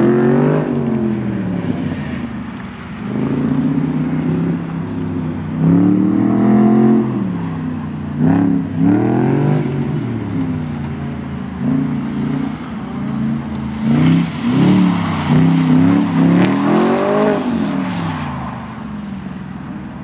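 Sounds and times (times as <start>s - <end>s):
car engine revving: 0.0s - 19.4s.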